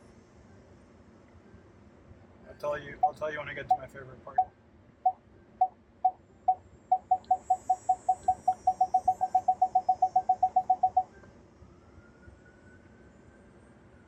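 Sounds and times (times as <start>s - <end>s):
parking sensor beeps: 3.0s - 4.5s, 5.1s - 11.2s.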